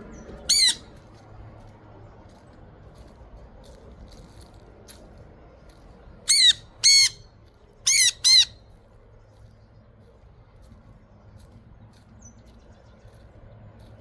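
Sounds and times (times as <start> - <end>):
parrot squawking: 0.5 - 0.9, 6.3 - 7.2, 7.9 - 8.6.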